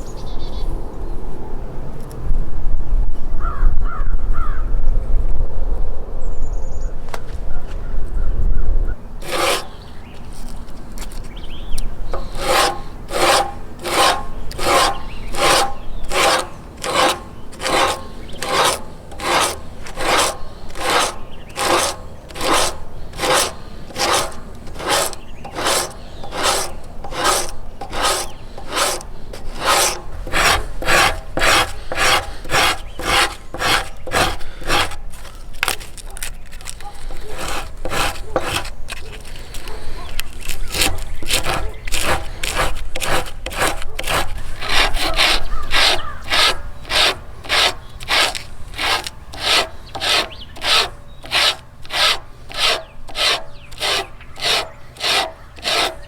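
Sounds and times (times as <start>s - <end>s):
hand rasp on wood: 9.2s - 9.9s, 12.1s - 35.9s, 36.7s - 39.8s, 40.5s - 56.0s.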